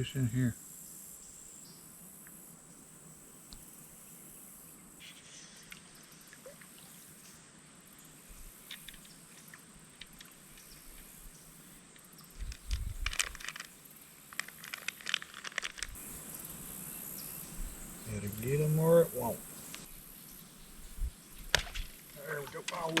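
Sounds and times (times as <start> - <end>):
insects chirring: 0.0 - 23.0
handling clicks and rustles: 12.4 - 16.2, 21.4 - 23.0.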